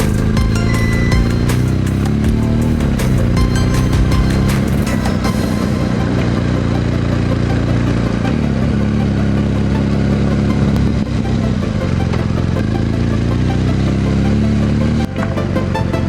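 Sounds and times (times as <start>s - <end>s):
motorcycle engine and exhaust running: 0.0s - 15.5s.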